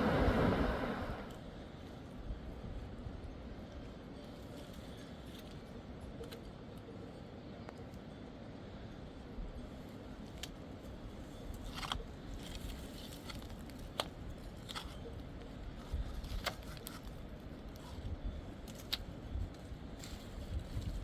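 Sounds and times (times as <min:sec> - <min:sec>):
steady low rumble: 0:00.0 - 0:01.6.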